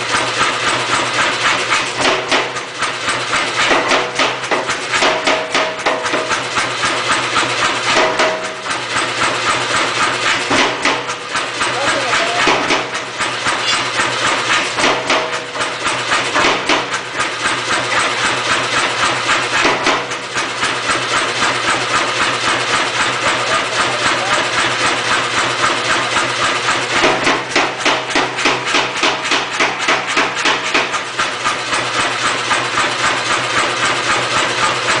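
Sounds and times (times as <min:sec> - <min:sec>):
power hammer striking steel: 0:00.0 - 0:35.0
machine motor humming: 0:06.2 - 0:29.8.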